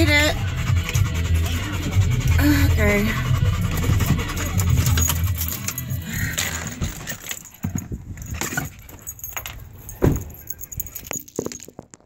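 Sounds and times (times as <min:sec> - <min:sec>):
keys jangling: 0:03.6 - 0:12.0.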